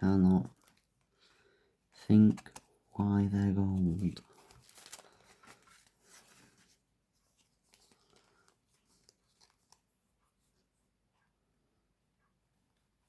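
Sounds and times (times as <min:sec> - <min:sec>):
trading cards rustling: 0:00.0 - 0:01.4, 0:02.0 - 0:09.9.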